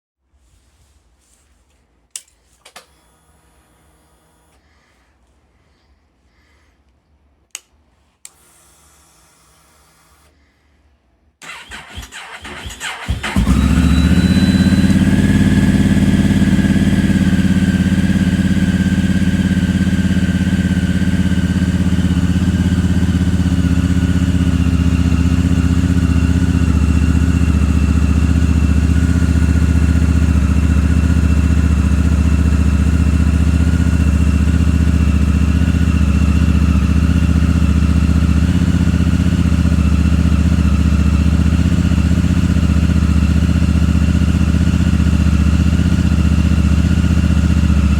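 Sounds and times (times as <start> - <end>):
motorcycle engine idling: 11.4 - 47.9.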